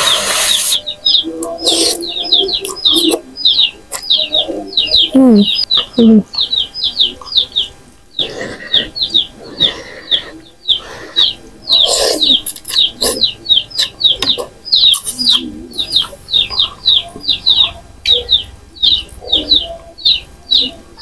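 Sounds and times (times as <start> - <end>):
slurping noodles: 0.0 - 0.8
small bird chirping: 0.0 - 21.0.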